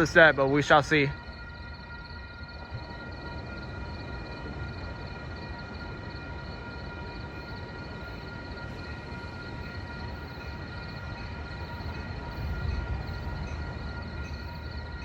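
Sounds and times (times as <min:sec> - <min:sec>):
steady high whine: 0:00.0 - 0:15.0
train rumble: 0:00.0 - 0:15.0.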